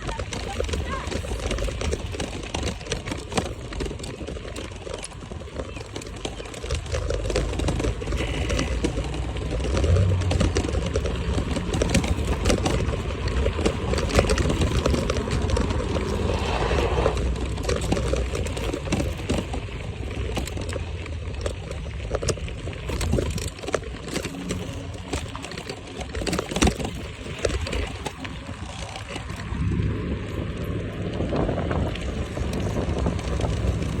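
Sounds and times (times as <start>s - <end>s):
knocks and rattles: 0.0s - 16.4s
wind rumbling on microphone: 0.0s - 34.0s.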